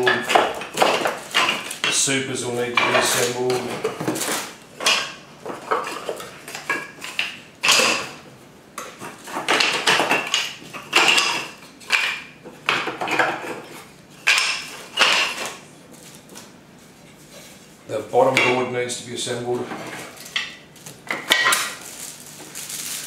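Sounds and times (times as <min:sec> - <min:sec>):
packaging rustles and knocks: 0:02.8 - 0:06.8, 0:20.0 - 0:23.0.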